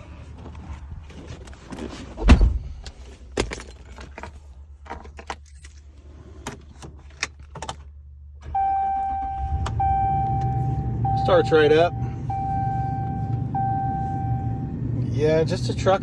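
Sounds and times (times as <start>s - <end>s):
electronic warning chime: 8.6s - 14.6s.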